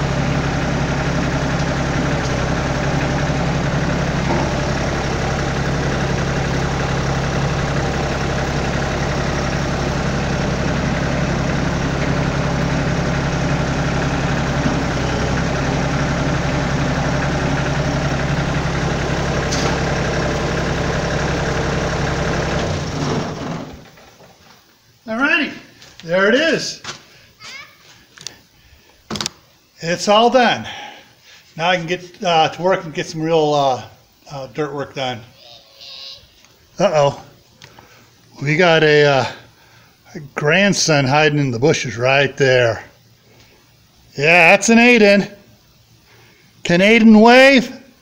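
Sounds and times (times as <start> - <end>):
tractor diesel engine idling: 0.0 - 24.4.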